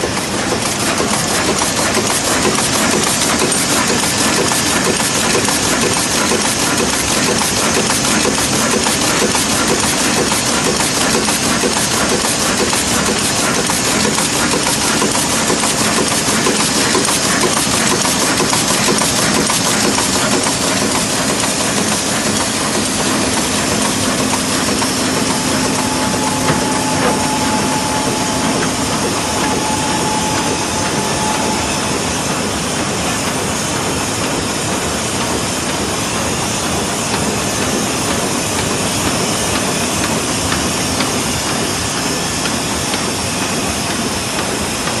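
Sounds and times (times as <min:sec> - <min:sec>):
sewing machine running: 0:00.0 - 0:33.3.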